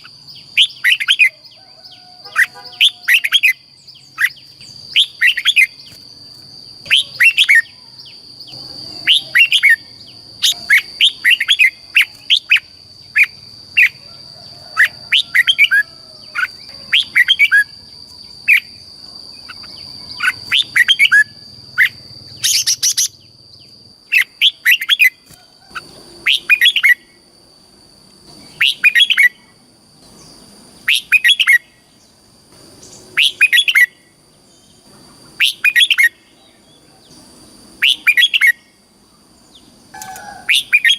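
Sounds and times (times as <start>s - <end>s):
bird singing warbled phrases: 0.0s - 27.2s, 28.3s - 40.9s.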